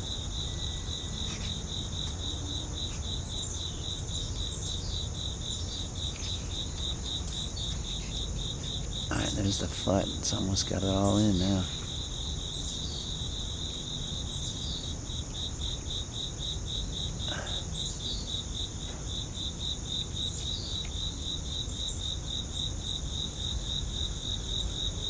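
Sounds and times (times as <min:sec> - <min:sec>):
high insect buzz: 0:00.0 - 0:25.0
insects chirping: 0:00.0 - 0:25.0.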